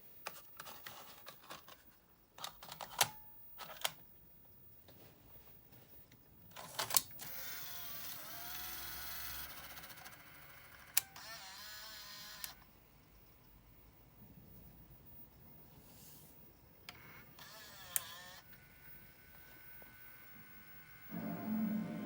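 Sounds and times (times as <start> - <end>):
motor whirring: 7.2 - 12.6, 17.0 - 22.0
tape mechanism clicks: 9.4 - 11.6, 16.9 - 18.6.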